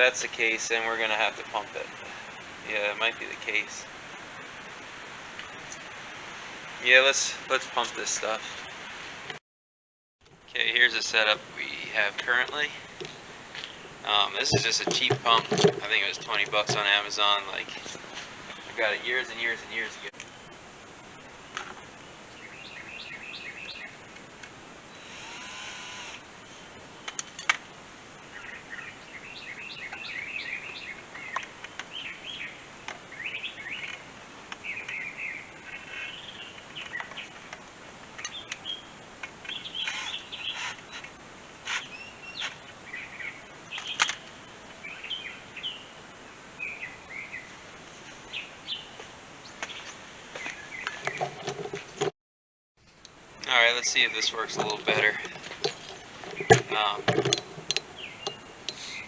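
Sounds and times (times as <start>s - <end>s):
birds chirping: 10.6s - 20.6s, 21.2s - 24.1s, 28.2s - 41.1s, 41.8s - 52.1s, 53.4s - 59.0s.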